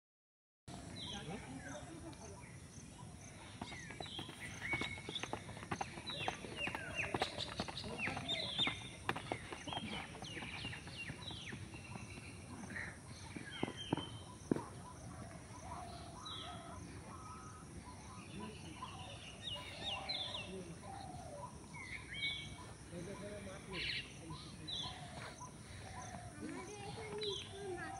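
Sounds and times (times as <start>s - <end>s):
birds chirping: 0.7s - 27.9s
footsteps on packed dirt: 3.3s - 16.6s, 18.2s - 27.9s.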